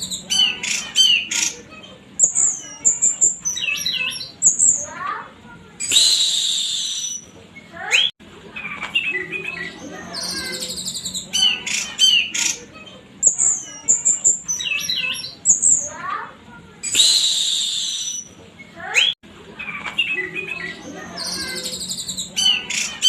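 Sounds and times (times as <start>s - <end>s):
thrush singing whistled song: 0.0s - 1.6s, 2.2s - 4.9s, 5.8s - 8.2s, 8.9s - 12.6s, 16.8s - 18.4s, 19.9s - 23.0s.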